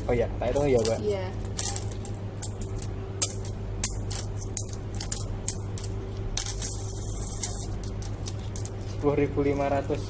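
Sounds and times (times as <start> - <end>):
coins clinking: 0.0 - 9.7.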